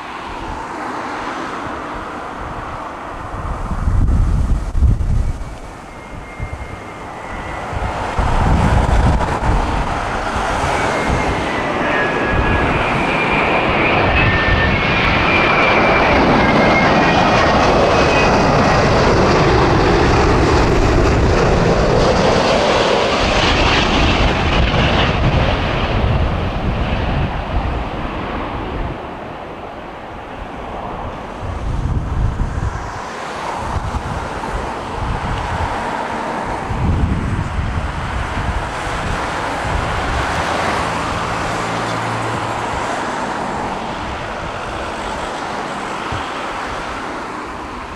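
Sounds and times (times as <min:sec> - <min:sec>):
jet airliner flying past: 0:00.0 - 0:47.9
wind buffeting microphone: 0:00.0 - 0:47.9
high fan whine: 0:02.2 - 0:16.6, 0:31.0 - 0:47.9.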